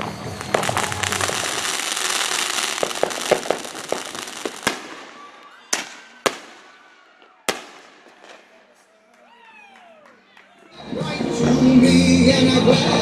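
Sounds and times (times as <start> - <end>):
fireworks sharp bangs: 0.0 - 8.7
fireworks crackling with pops: 0.0 - 8.9.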